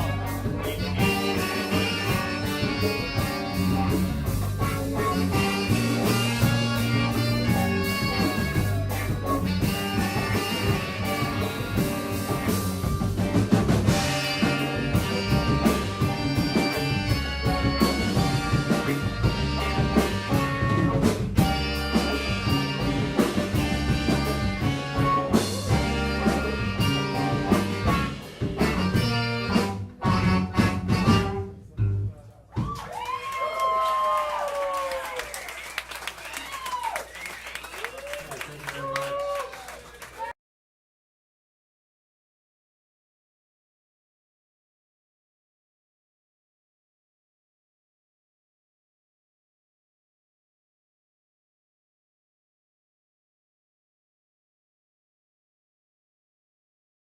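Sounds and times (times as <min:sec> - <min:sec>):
drums with steady beat: 0:00.0 - 0:31.6
bass line: 0:00.0 - 0:32.8
guitar: 0:00.0 - 0:32.8
live band playing: 0:00.0 - 0:40.3.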